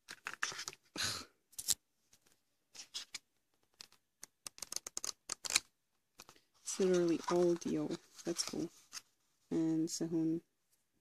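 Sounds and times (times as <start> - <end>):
paper pages rustling: 0.0 - 0.9, 1.6 - 9.2.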